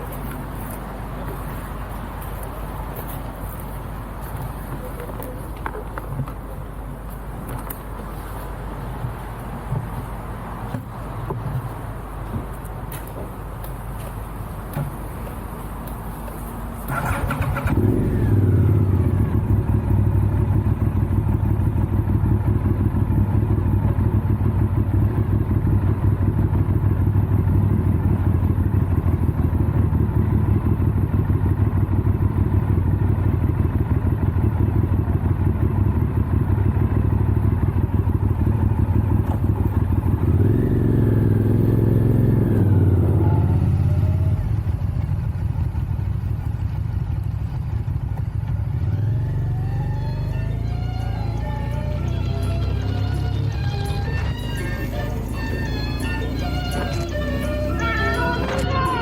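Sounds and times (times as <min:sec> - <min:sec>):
motorcycle engine starting and running: 0:16.3 - 0:59.0.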